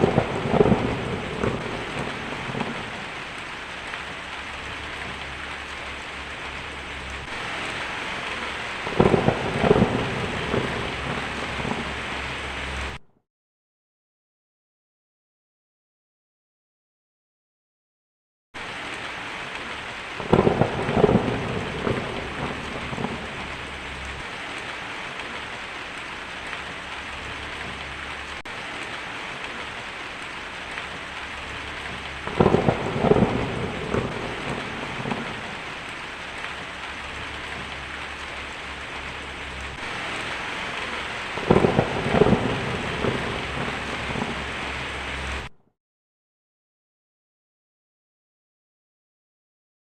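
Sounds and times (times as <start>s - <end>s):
thunder peals: 0.0s - 3.4s, 4.5s - 13.0s, 20.2s - 25.5s, 30.7s - 45.5s
steady rain: 0.0s - 13.0s, 18.6s - 45.5s.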